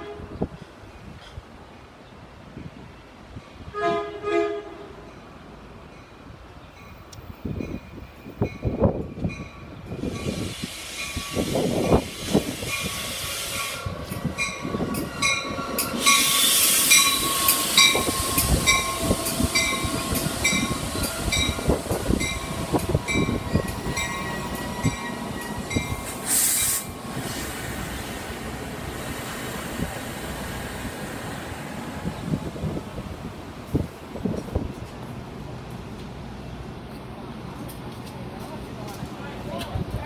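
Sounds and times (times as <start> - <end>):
train brake noise: 10.0 - 32.2
air hiss: 10.1 - 14.0, 16.0 - 21.0, 26.0 - 31.7.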